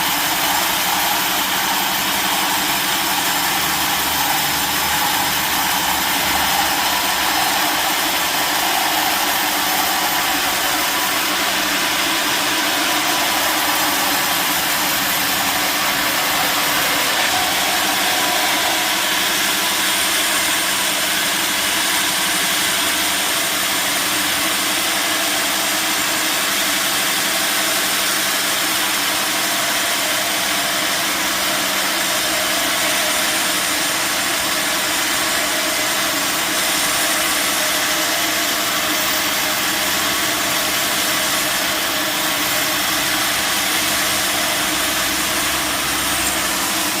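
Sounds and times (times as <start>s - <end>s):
sawmill machinery running: 0.0s - 47.0s.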